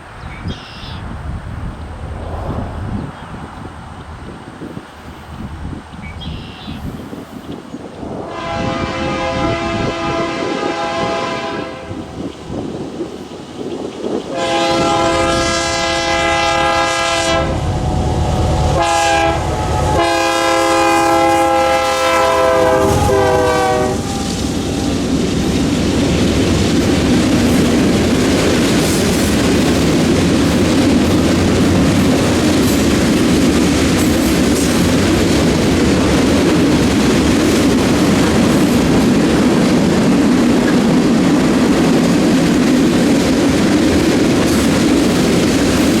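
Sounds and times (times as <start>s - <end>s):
train rumbling past: 0.0s - 46.0s
locomotive air horn blasts: 8.2s - 12.1s, 14.3s - 24.9s.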